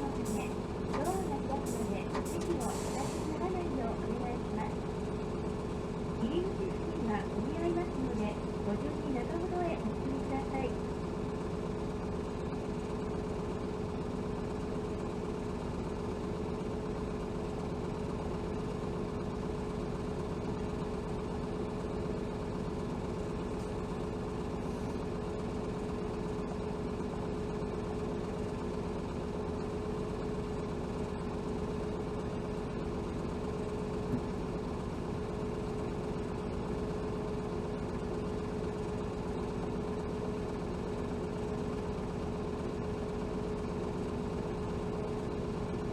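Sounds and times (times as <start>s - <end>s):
bus engine humming: 0.0s - 11.0s.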